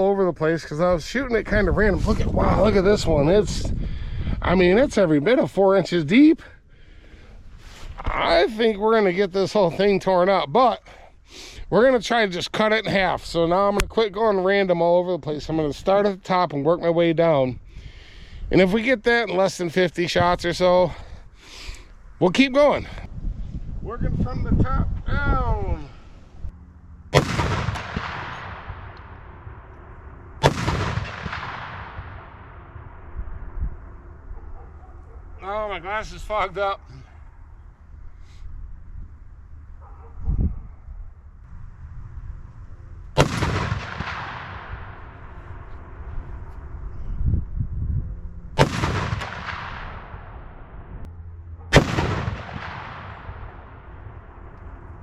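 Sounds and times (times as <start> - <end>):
rifle shots with rolling echo: 27.1 - 35.0, 43.2 - 46.7, 48.6 - 50.9, 51.7 - 55.0.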